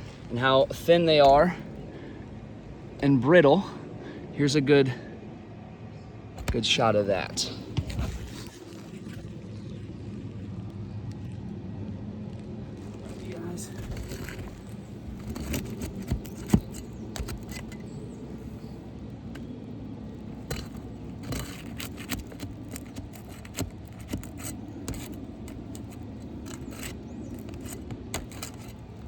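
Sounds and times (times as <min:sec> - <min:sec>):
tool scraping under roof shingles: 0:00.0 - 0:02.1, 0:06.4 - 0:09.4, 0:12.8 - 0:29.0
low background hum: 0:00.0 - 0:29.0.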